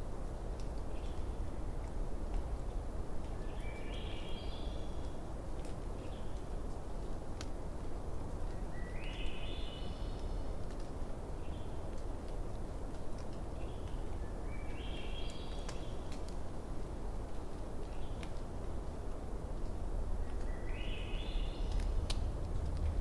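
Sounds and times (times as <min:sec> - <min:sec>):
campfire crackling and popping: 0:06.7 - 0:07.6, 0:21.6 - 0:23.0.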